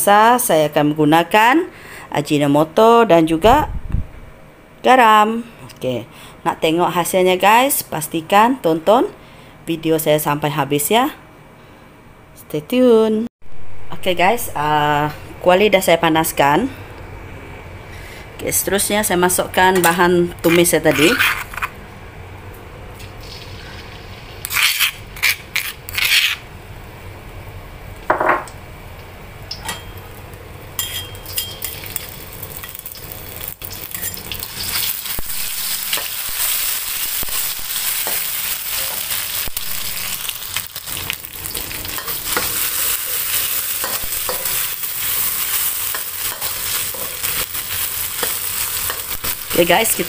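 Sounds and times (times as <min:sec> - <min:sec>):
paste sizzling in hot oil: 0:31.7 - 0:50.0.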